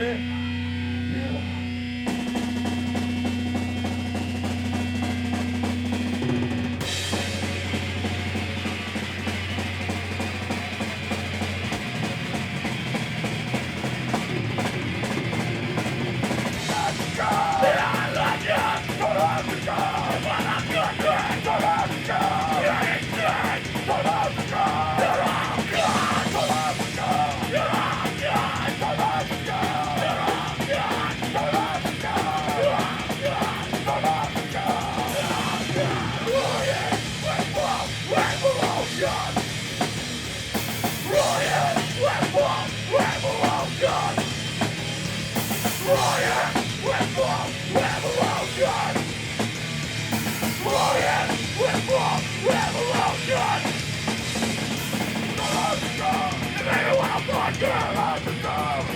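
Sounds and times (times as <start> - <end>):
shouted vocals: 0.0 - 1.7, 16.5 - 39.9, 40.8 - 44.7, 45.4 - 49.4, 50.4 - 54.0, 55.0 - 58.9
distorted electric guitars: 0.0 - 58.9
drum kit: 0.0 - 58.9.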